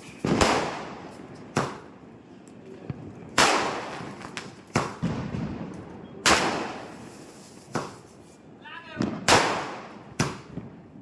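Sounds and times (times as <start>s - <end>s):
firework bangs with echo: 0.0s - 1.9s, 3.3s - 8.2s, 9.0s - 10.8s
faint firework pops: 2.8s - 8.2s.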